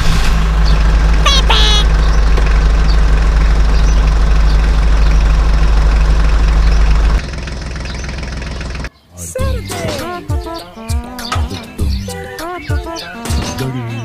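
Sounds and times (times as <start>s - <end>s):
engine idling: 0.0s - 8.9s.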